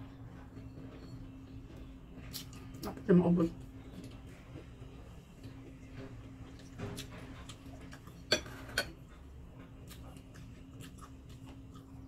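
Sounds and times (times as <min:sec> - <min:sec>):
person chewing food: 0:05.4 - 0:12.0.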